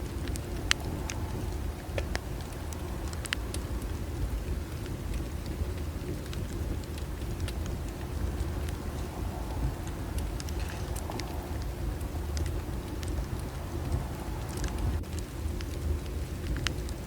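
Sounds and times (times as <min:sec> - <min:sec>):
low rumble of flames: 0:00.0 - 0:17.0
wood crackling and popping: 0:00.0 - 0:17.0.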